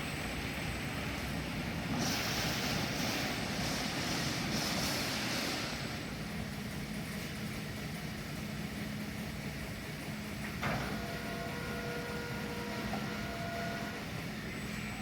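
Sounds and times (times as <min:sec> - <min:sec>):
industrial machinery hum: 0:00.0 - 0:15.0
faint whining tones: 0:10.5 - 0:15.0.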